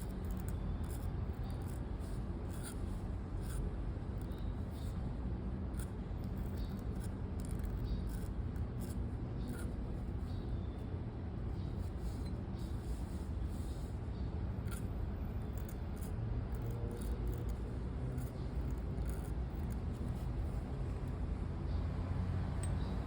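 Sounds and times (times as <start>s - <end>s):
pen scratching on paper: 0.0s - 5.0s, 5.7s - 10.4s, 14.5s - 21.1s
low background rumble: 0.0s - 23.0s.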